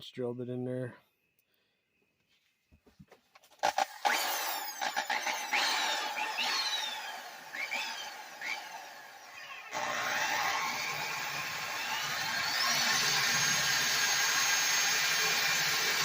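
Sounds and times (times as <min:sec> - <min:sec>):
electric drill boring: 0:03.6 - 0:16.0.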